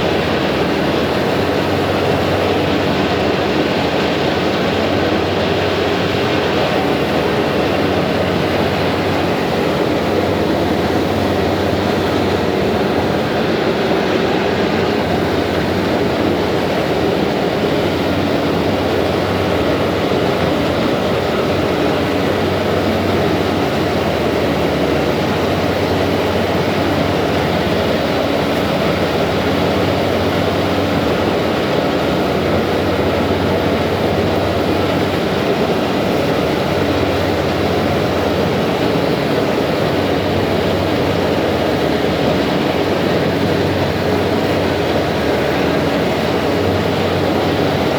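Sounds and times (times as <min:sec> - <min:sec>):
boat engines droning: 0:00.0 - 0:47.9.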